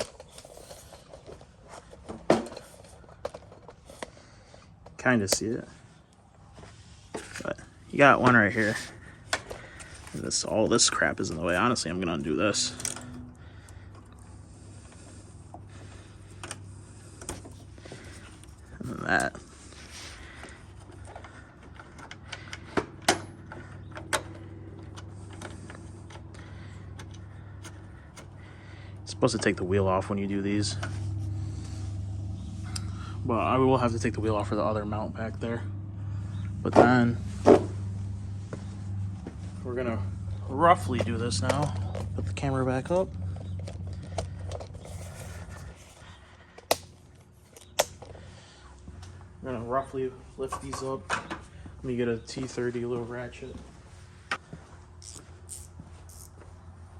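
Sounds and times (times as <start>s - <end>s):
faint scraping and handling: 0.0s - 22.3s, 42.8s - 49.2s
low hum: 5.6s - 49.5s.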